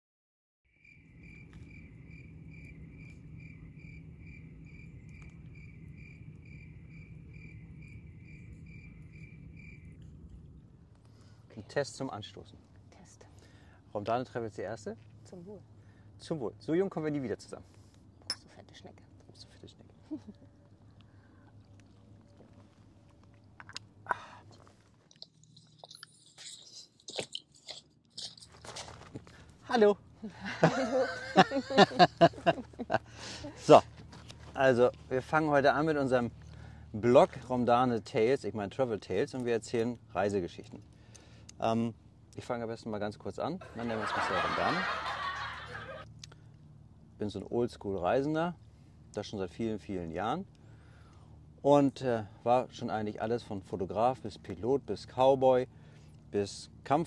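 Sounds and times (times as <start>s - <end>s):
cricket chirping: 0.7s - 12.8s, 19.3s - 42.6s, 43.6s - 49.2s
low background hum: 0.9s - 57.0s
low steady rumble: 1.0s - 26.3s, 27.9s - 57.0s
person chewing crunchy food: 21.4s - 29.4s
mouth clicks: 23.4s - 28.6s.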